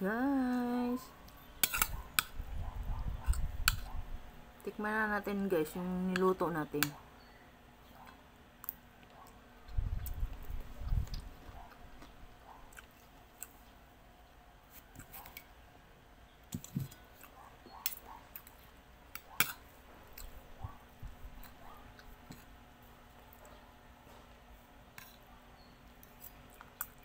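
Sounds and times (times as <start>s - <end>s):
person chewing: 8.1s - 13.6s.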